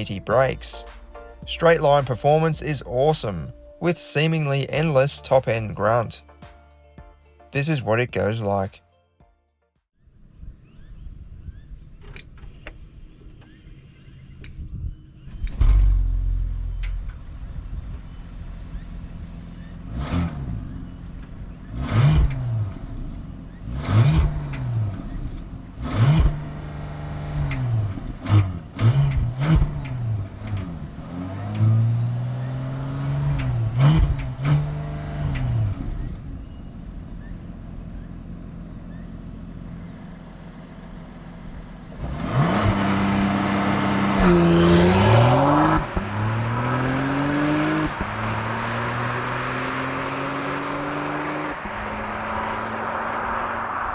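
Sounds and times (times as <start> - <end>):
car engine revving: 15.1 - 53.9
car accelerating with upshifts: 16.7 - 39.9, 41.9 - 53.9.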